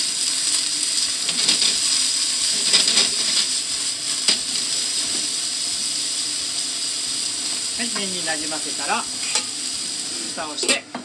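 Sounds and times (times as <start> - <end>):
noodles sizzling in a frying pan: 0.0 - 11.0
chopsticks scraping a pan: 1.3 - 1.8, 2.4 - 3.6, 9.2 - 9.6.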